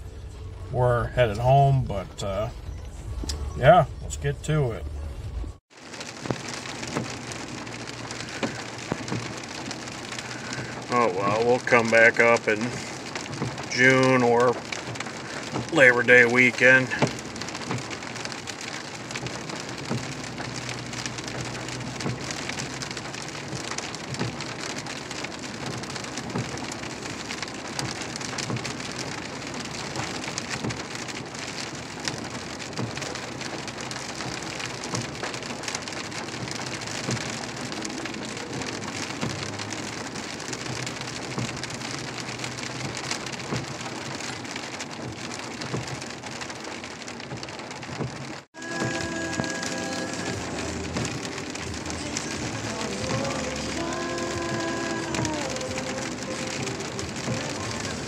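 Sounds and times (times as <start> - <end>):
low engine hum: 0.0 - 11.7, 48.0 - 58.0
heavy rain on a windshield: 0.3 - 2.5, 3.1 - 58.0.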